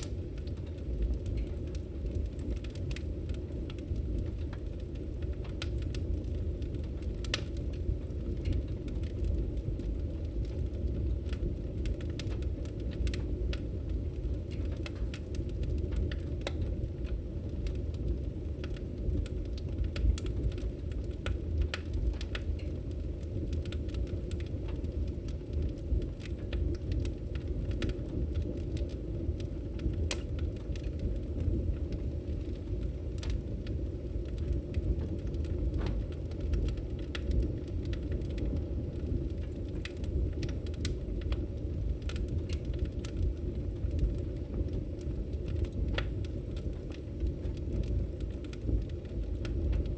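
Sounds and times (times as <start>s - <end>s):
wood fire crackling: 0.0s - 49.9s.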